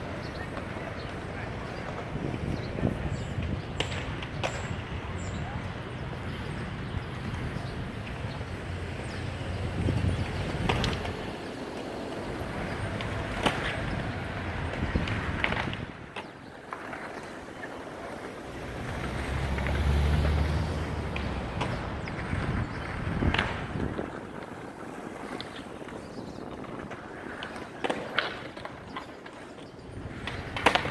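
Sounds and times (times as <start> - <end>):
low traffic rumble: 0.0 - 27.5
vehicle passing: 2.2 - 15.8, 17.1 - 24.1.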